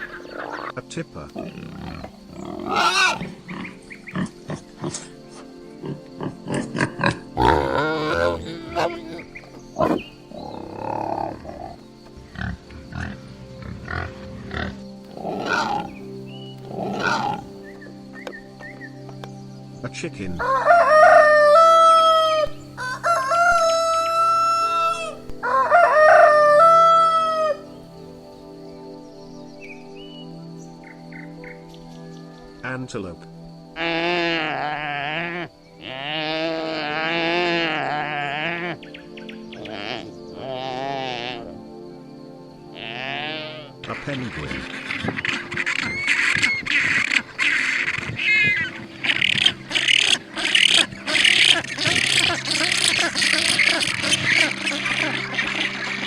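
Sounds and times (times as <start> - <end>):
animal calling: 0.0 - 18.0, 33.8 - 41.6, 42.8 - 56.0
background music: 0.0 - 56.0
antelope bleating: 5.8 - 10.0, 16.7 - 17.5, 33.8 - 38.8, 39.6 - 41.6, 42.8 - 44.4, 45.0 - 55.2.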